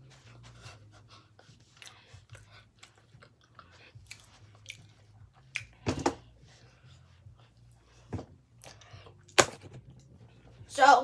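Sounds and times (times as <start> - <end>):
person biting and chewing food: 1.8 - 5.8.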